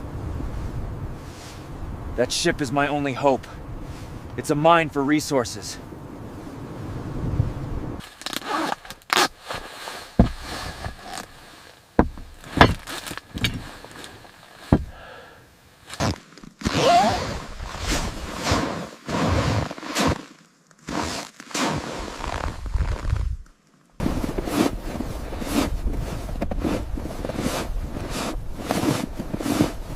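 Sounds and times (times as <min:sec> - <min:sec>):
footsteps crunching in snow: 0:08.0 - 0:15.0, 0:15.8 - 0:29.9
sharp knocks and scrapes: 0:09.2 - 0:15.0.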